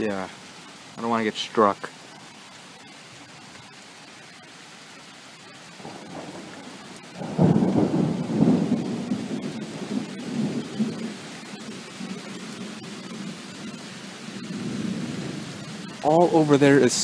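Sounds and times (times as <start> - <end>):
steady rain: 0.0 - 17.0
thunder rumbling: 5.7 - 17.0.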